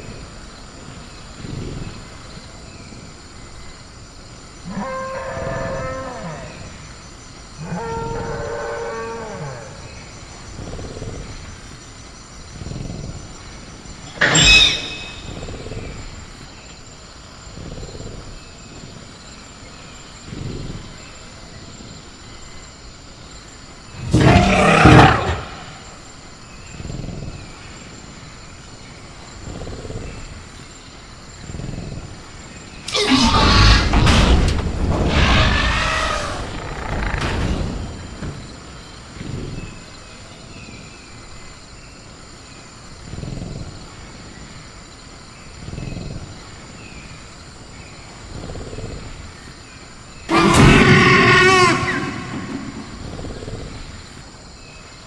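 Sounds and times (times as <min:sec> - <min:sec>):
high cricket-like tone: 0:00.0 - 0:55.0
creature pitched call: 0:14.1 - 0:15.5, 0:32.9 - 0:34.0, 0:35.1 - 0:37.2, 0:50.3 - 0:53.3
loud harsh roar: 0:50.3 - 0:53.0
sharp crack: 0:50.3 - 0:53.1.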